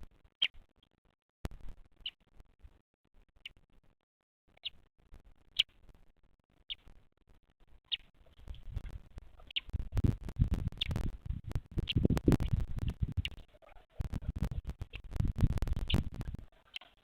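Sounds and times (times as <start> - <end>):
bird chick peeping: 0.4 - 0.7, 2.0 - 2.2, 4.5 - 5.8, 6.6 - 6.9, 7.8 - 17.0.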